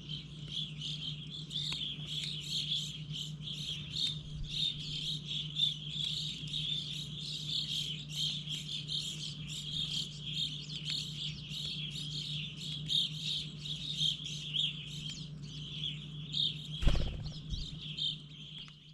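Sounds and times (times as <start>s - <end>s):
low steady hum: 0.0s - 18.9s
small birds chirping: 0.0s - 18.9s
sudden thump: 16.8s - 17.8s.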